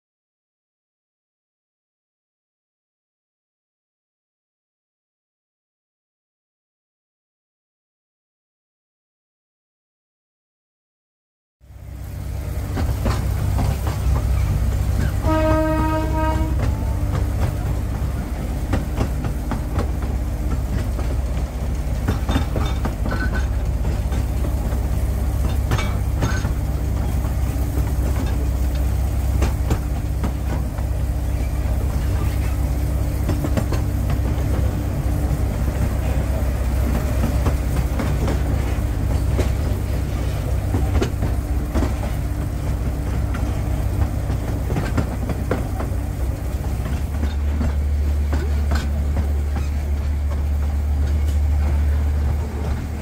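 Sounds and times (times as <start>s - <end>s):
train wheels rumbling on track: 11.6s - 53.0s
locomotive horn toot: 15.0s - 17.6s.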